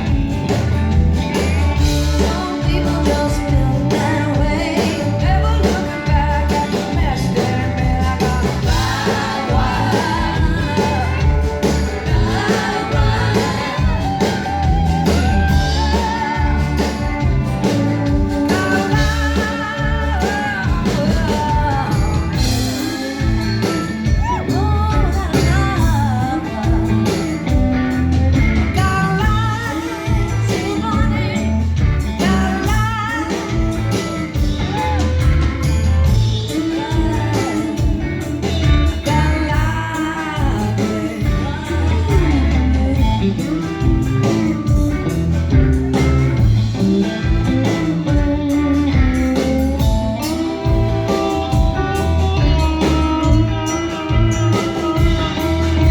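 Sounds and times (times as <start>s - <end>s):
bass guitar: 0.0s - 55.9s
electric guitar: 0.0s - 55.9s
person singing: 2.0s - 28.0s, 28.8s - 44.8s
drum beat: 6.9s - 23.4s.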